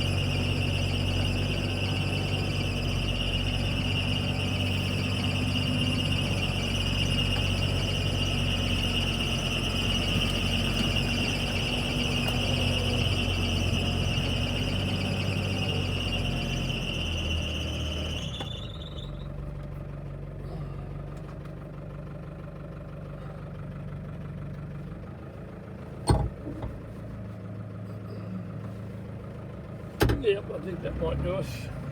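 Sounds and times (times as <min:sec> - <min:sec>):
fan belt squealing: 0:00.0 - 0:20.8
truck engine running: 0:00.0 - 0:31.9.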